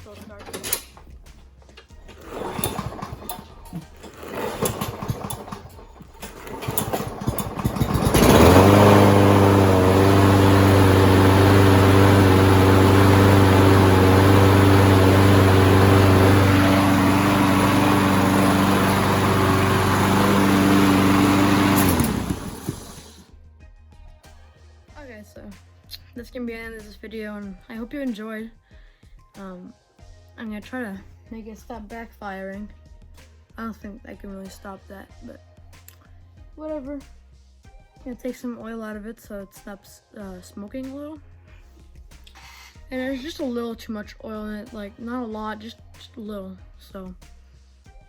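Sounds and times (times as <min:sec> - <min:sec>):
lawnmower engine running: 0:00.0 - 0:01.0, 0:01.7 - 0:23.3
lawnmower engine cranking: 0:00.0 - 0:23.2.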